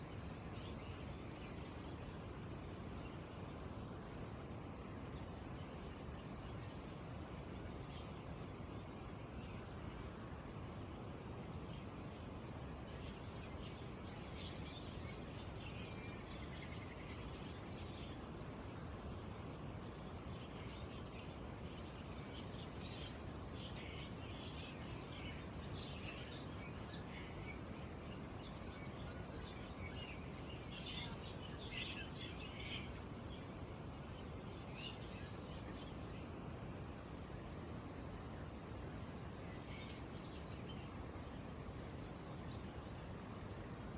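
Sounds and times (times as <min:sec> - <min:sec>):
caged birds chirping: 0:00.0 - 0:43.9
low background hum: 0:00.0 - 0:43.9.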